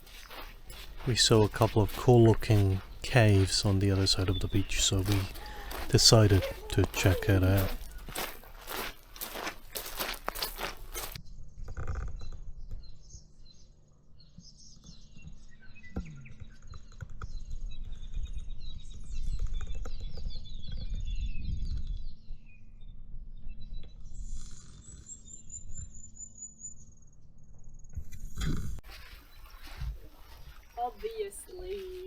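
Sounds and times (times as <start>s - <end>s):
songbirds chirping: 0.0s - 11.2s, 28.9s - 32.0s.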